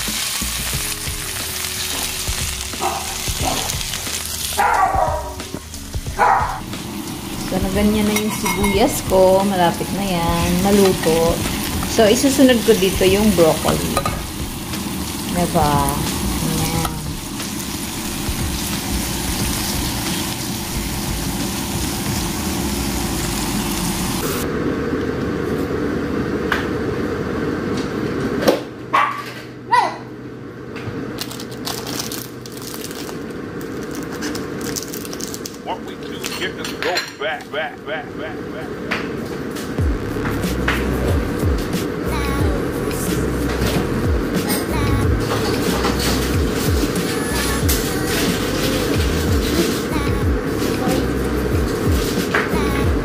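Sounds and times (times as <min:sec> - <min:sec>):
onion rings frying in oil: 0:00.0 - 0:24.4, 0:31.2 - 0:35.7
dull low noise: 0:39.8 - 0:53.0.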